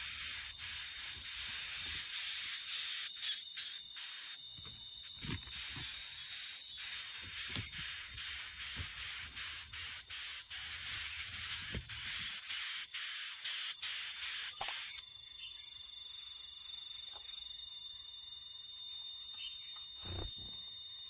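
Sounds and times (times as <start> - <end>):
cricket-like insect trilling: 0.0 - 21.0
high hiss with faint ticks: 6.8 - 15.0.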